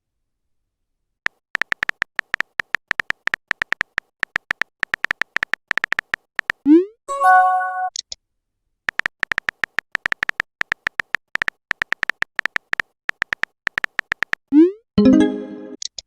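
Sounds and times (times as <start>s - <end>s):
electronic typing ticks: 1.3s - 6.6s, 8.9s - 14.7s.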